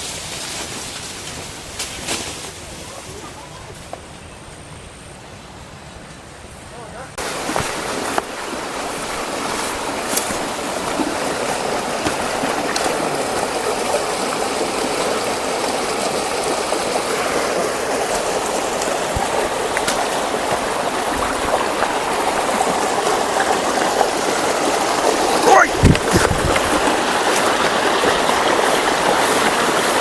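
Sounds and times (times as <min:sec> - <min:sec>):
stream water running: 0:07.2 - 0:30.0.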